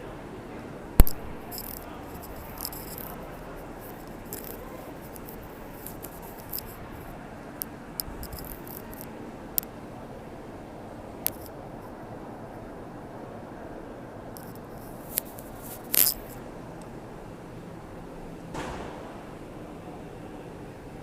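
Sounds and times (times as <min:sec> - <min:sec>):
sharp loud click: 0:01.0 - 0:01.9.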